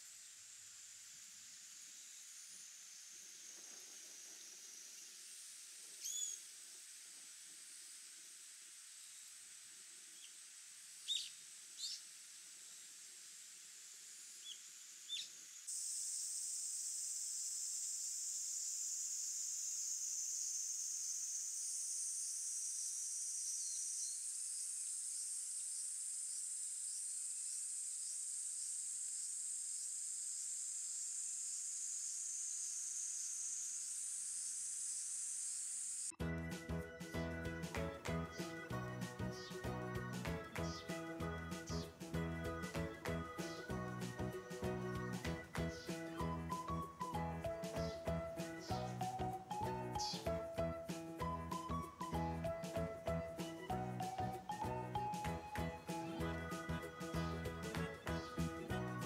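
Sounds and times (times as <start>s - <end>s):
steady high-pitched hiss: 0.0s - 59.0s
high bird calls: 6.0s - 6.4s.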